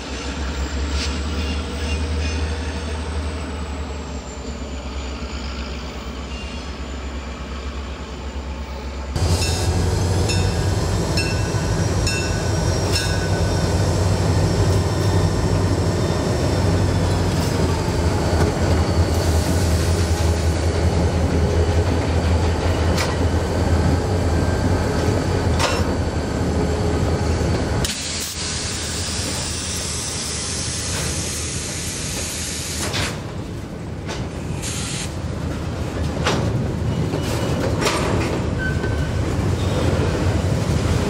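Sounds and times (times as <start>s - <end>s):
locomotive engine rumble: 0.2s - 29.6s
hiss of air: 27.8s - 33.2s, 34.5s - 35.2s.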